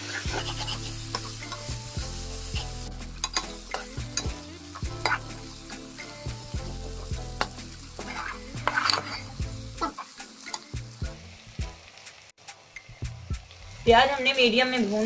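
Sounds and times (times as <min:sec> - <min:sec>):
metal spatula scraping a pan: 0:00.0 - 0:10.7
vegetables sizzling in hot oil: 0:00.0 - 0:15.0.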